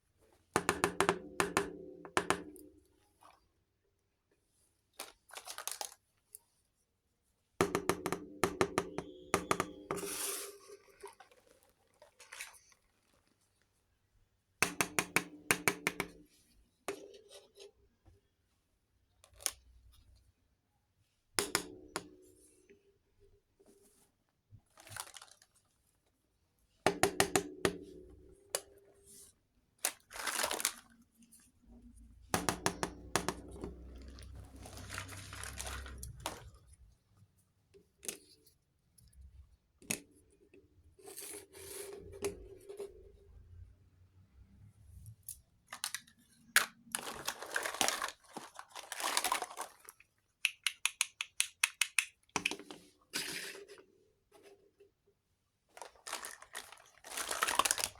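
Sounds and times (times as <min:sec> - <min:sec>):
packaging rustling and tearing: 0:05.3 - 0:06.0, 0:24.8 - 0:25.5, 0:29.9 - 0:31.0, 0:33.8 - 0:36.5, 0:45.8 - 0:50.1, 0:55.7 - 0:57.9
small plastic pieces clicking: 0:50.4 - 0:52.6.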